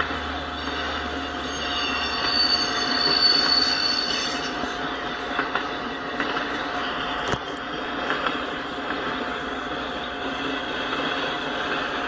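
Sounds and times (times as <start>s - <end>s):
wheels rumbling on rail: 0.0s - 12.0s
high wheel squeal: 0.2s - 5.0s.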